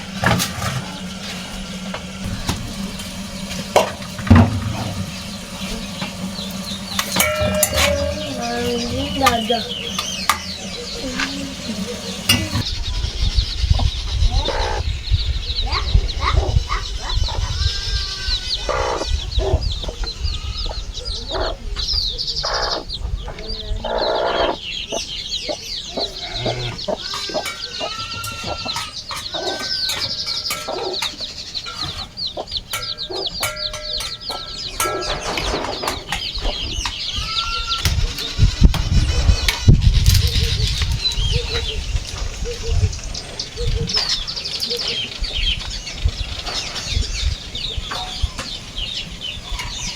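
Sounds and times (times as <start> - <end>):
chickens clucking: 0.0 - 49.9
small birds chirping: 0.0 - 49.9.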